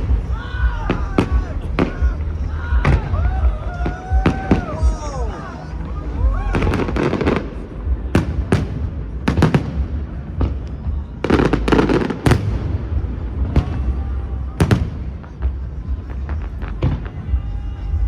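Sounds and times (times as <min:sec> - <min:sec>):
crackling fireworks: 0:00.0 - 0:18.0
low rumble: 0:00.0 - 0:18.0.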